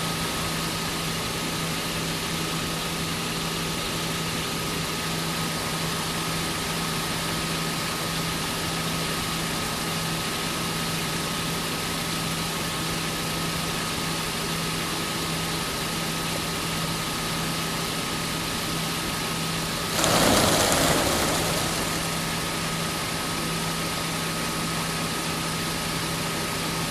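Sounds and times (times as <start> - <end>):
loud rush of noise: 19.9 - 23.2.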